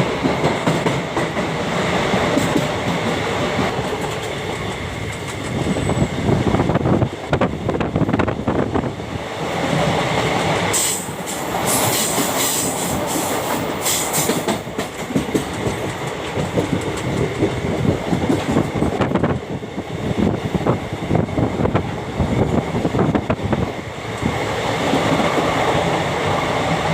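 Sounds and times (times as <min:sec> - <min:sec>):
train wheels clicking on rails: 0:00.0 - 0:26.9
hissing rush: 0:10.6 - 0:14.5.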